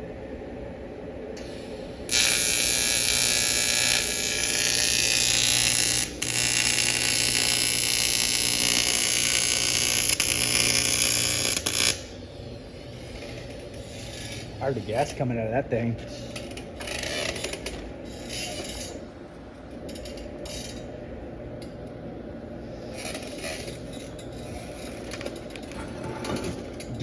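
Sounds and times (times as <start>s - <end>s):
welding arc hissing and buzzing: 1.4s - 19.0s.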